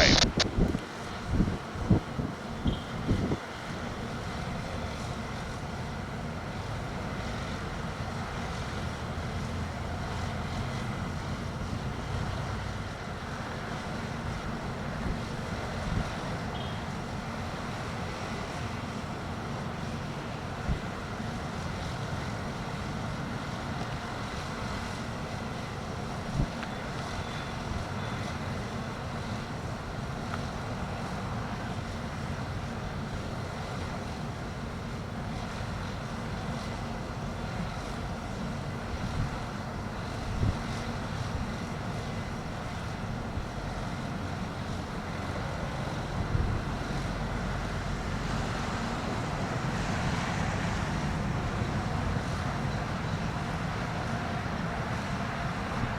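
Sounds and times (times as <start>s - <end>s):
wind buffeting microphone: 0.0s - 3.4s.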